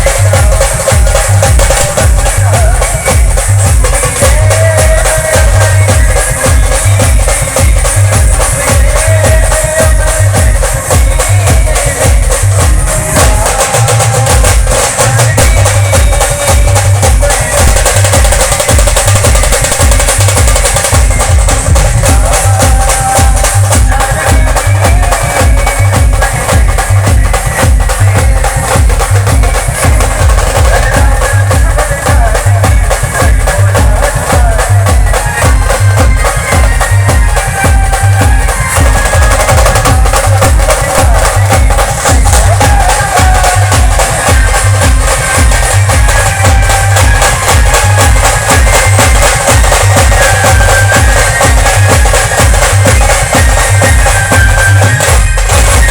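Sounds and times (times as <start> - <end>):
band playing loud music: 0.0 - 55.9
bass drum hits: 15.4 - 54.4.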